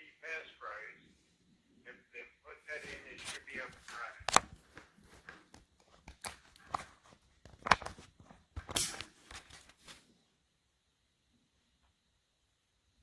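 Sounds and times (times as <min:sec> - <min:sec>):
clicks and knocks of handling: 0:04.2 - 0:09.8.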